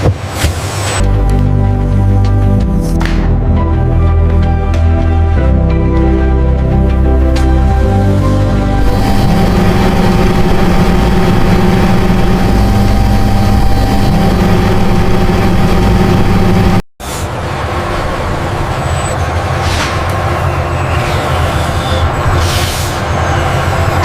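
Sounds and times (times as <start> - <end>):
machinery hum and rumble: 6.6 - 24.0.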